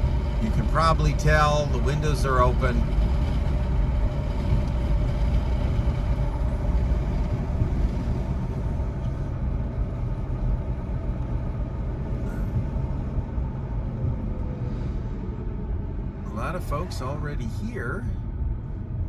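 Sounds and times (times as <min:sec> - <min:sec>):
wind and road rumble in car: 0:00.0 - 0:19.0.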